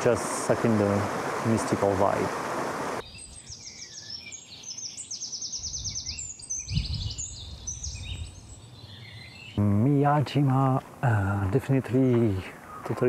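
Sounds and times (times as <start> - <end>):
small birds singing trills: 2.7 - 13.0.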